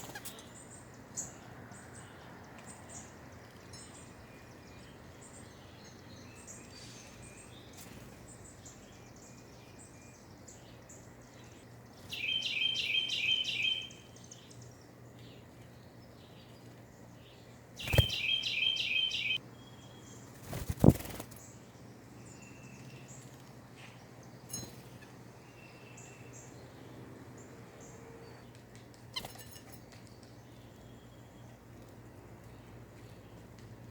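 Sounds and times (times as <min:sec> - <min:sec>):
bird singing repeated notes: 0:12.0 - 0:14.6, 0:17.8 - 0:20.2.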